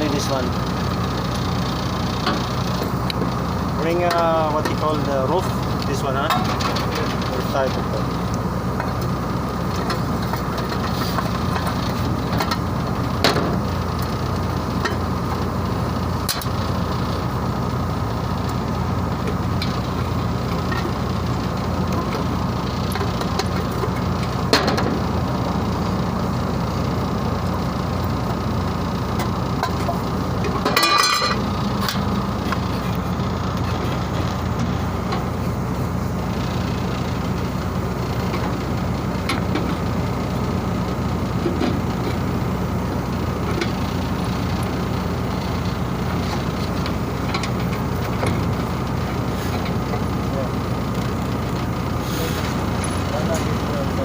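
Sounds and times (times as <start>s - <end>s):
machinery humming: 0.0s - 54.0s
metal clatter: 29.6s - 32.0s.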